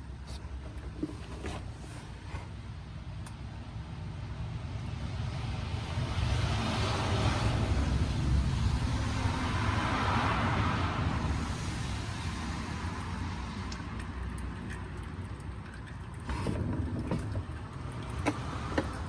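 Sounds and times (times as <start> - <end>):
vehicle passing by: 5.6 - 13.6.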